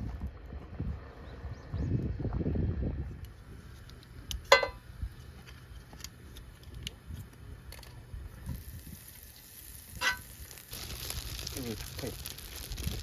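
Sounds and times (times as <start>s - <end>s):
short ringing clink: 4.5s - 4.8s.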